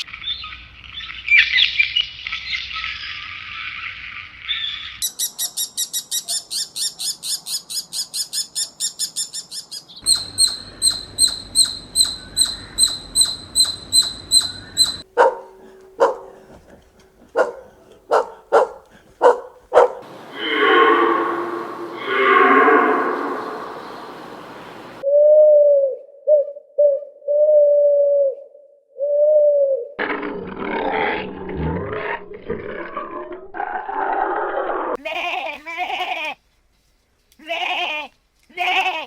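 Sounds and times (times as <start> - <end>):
bird chatter: 4.8 - 22.2
high pure chirps: 10.0 - 16.4, 18.1 - 25.0
dog barking: 15.0 - 20.1.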